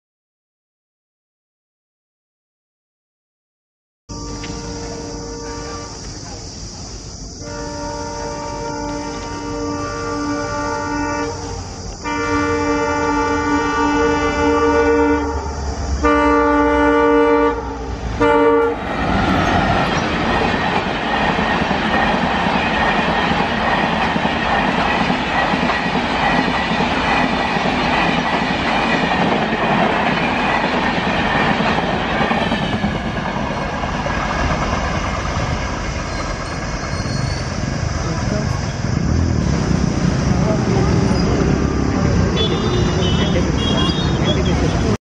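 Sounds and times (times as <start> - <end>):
locomotive horn blasts: 4.1 - 6.1, 7.4 - 19.6, 40.5 - 45.0
train wheels clattering on rails: 8.0 - 12.0, 18.7 - 45.0.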